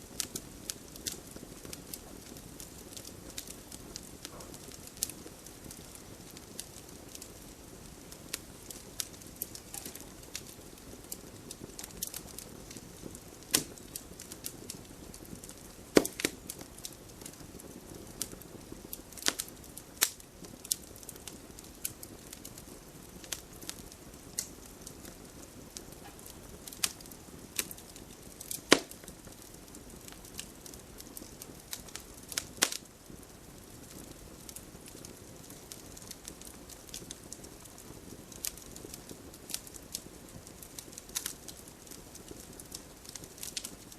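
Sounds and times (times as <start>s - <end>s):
campfire crackling and popping: 0.0s - 43.9s
low steady hiss: 0.0s - 43.9s.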